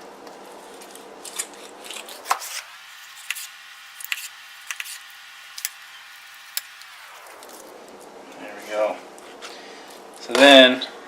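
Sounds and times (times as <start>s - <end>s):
knife cutting clicks: 3.2s - 5.0s.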